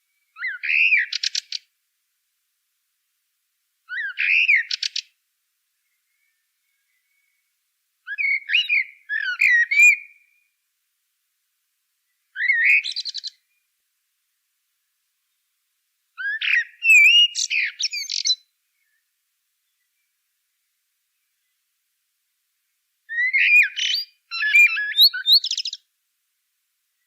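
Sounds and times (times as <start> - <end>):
songbird warbling and chirping: 0.3 - 1.7, 8.1 - 10.3, 12.3 - 13.6, 16.2 - 20.1, 23.1 - 25.9.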